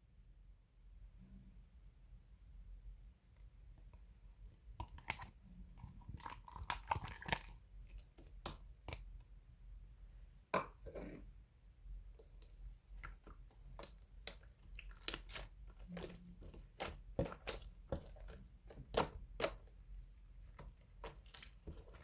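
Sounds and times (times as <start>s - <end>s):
slime squished by hand: 12.2s - 22.0s.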